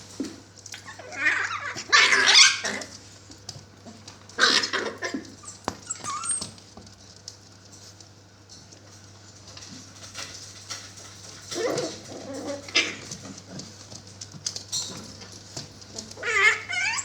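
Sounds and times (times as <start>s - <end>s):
puppies squealing and whimpering: 0.8s - 2.9s, 4.4s - 6.6s, 11.5s - 13.2s, 16.1s - 17.0s.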